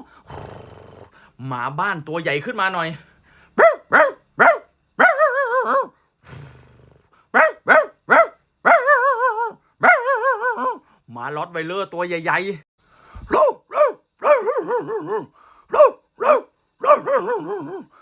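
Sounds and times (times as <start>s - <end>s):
person imitating dog barks: 3.6s - 6.0s, 7.3s - 10.9s, 13.2s - 17.9s.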